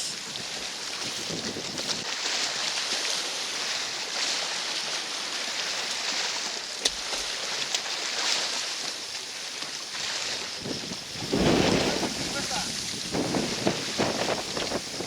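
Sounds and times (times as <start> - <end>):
wind on microphone: 0.0 - 2.2, 10.4 - 15.0
lake water washing against concrete: 0.0 - 15.0.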